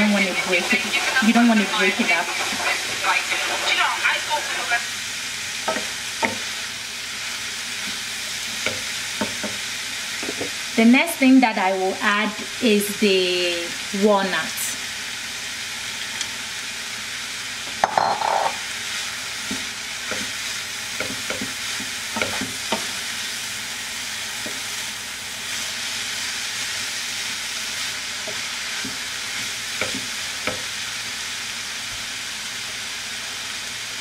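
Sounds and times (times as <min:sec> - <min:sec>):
wooden spoon stirring and scraping: 0:00.0 - 0:03.8
vegetables sizzling in pan: 0:00.0 - 0:34.0
spoon knocking on pan: 0:05.7 - 0:06.5, 0:08.6 - 0:09.6, 0:17.7 - 0:18.6, 0:21.0 - 0:22.9, 0:29.8 - 0:30.7.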